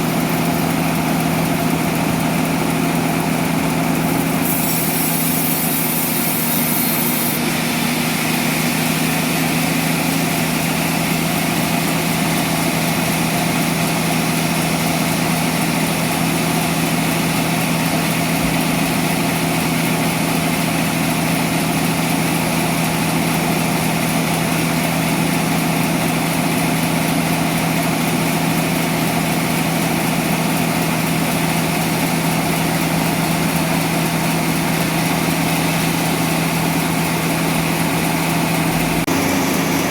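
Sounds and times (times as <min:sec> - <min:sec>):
sawmill machinery humming: 0:00.0 - 0:39.9
brief high hiss: 0:04.4 - 0:07.4.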